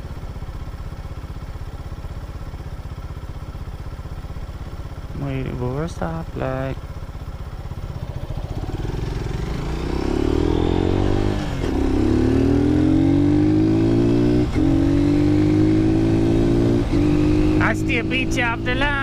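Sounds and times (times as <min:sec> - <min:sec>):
motorcycle engine revving up: 0:08.0 - 0:19.0.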